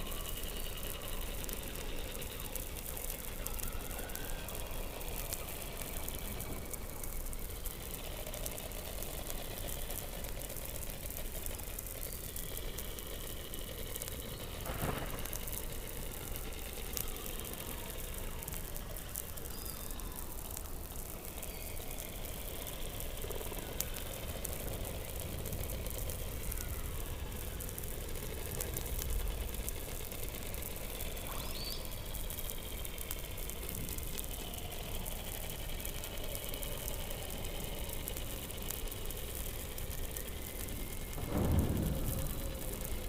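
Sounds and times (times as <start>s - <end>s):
high whistle-like tones: 0.0s - 7.0s, 16.2s - 20.6s
underwater hiss and crackle: 0.0s - 43.0s.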